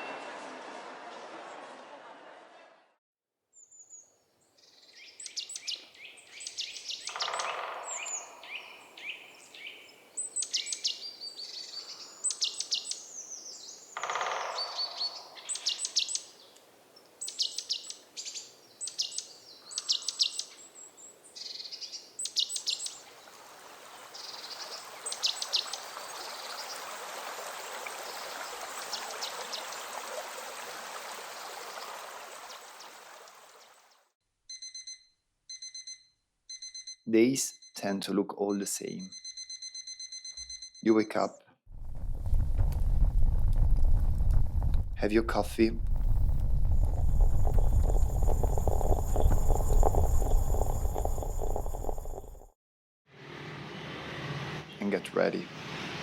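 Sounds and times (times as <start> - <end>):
birds singing: 3.6 - 16.6, 17.2 - 23.3, 24.2 - 26.8
steady rushing noise: 41.8 - 52.4.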